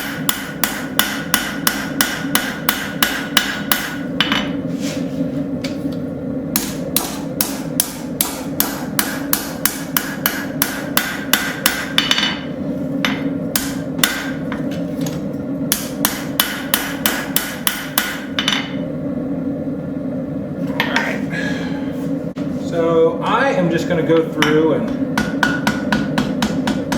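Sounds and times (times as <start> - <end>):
hammer striking metal on anvil: 0.0 - 4.6, 6.5 - 14.5, 15.7 - 18.8, 24.2 - 26.9.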